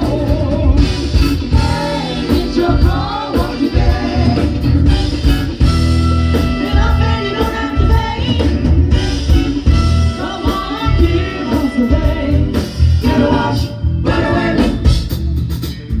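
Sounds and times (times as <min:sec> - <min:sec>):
person singing: 0:00.0 - 0:05.1, 0:10.0 - 0:15.0
soul band playing upbeat song: 0:00.0 - 0:16.0.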